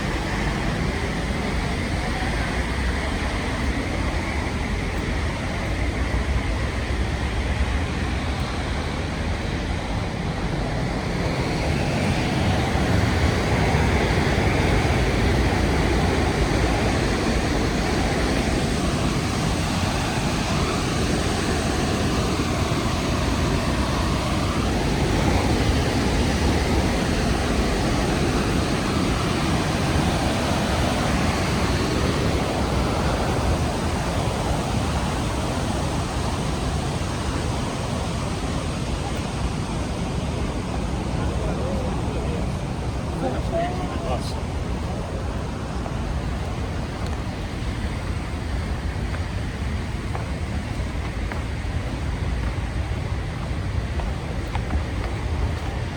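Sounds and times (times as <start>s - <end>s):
waterfall roaring: 0.0s - 55.9s.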